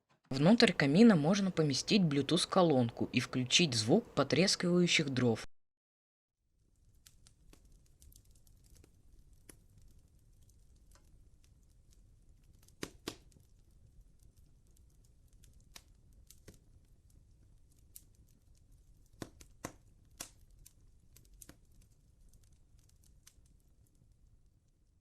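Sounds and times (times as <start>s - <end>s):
low hiss: 0.3s - 5.4s
recorded fire crackling pops: 6.5s - 25.0s.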